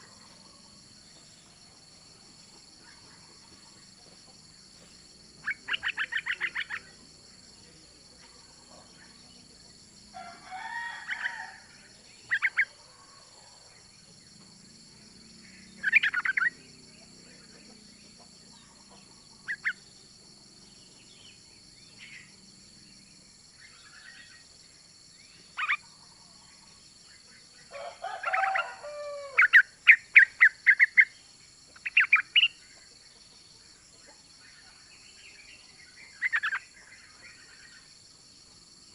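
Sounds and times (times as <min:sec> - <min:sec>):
bird chattering calls: 0:05.4 - 0:07.0, 0:15.8 - 0:16.6, 0:25.6 - 0:25.8, 0:36.2 - 0:36.7.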